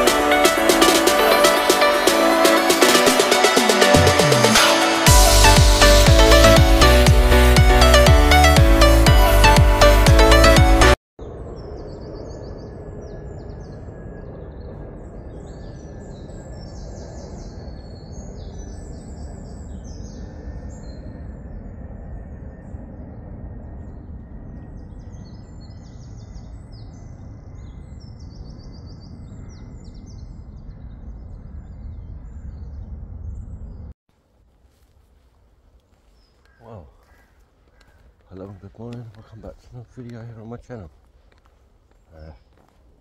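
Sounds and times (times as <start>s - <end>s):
small birds chattering: 36.0s - 43.0s.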